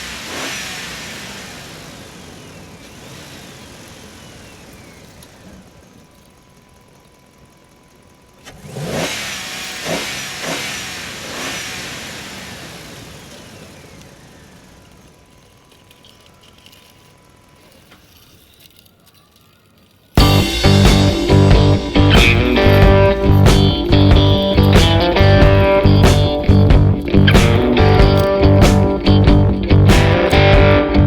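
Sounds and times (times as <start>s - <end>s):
vehicle engine revving: 0.0s - 6.0s, 6.9s - 15.7s, 20.2s - 31.0s
music: 20.2s - 31.0s.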